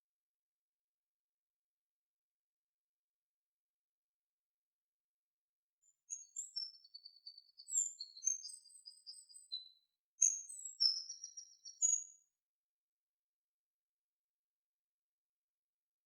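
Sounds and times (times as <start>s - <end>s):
songbird singing: 5.8s - 12.3s.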